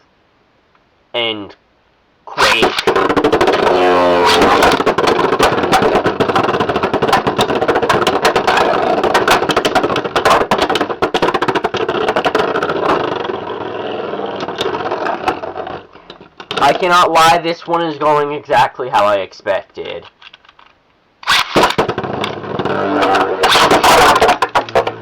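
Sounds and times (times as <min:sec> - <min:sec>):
spinning tops whirring: 0:02.4 - 0:16.8, 0:21.2 - 0:25.0.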